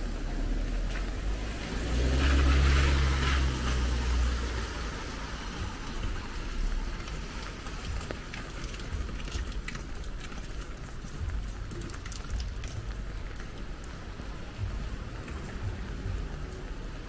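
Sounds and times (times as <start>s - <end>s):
steady rain falling: 0.0s - 17.0s
vehicle engine hum passing: 0.0s - 17.0s
drops ticking on hard surfaces: 5.6s - 17.0s.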